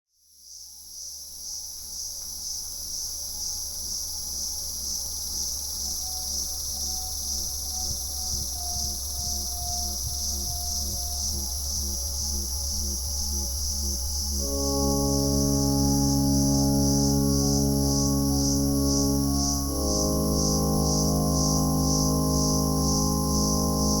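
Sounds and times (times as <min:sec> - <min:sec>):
low sustained drone: 0:14.2 - 0:24.0
shrill insect chorus: 0:14.4 - 0:24.0
soft repeating musical tones: 0:14.4 - 0:24.0.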